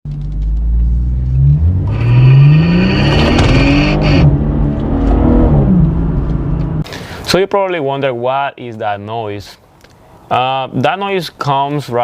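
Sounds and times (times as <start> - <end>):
car engine accelerating hard: 0.2 - 6.8.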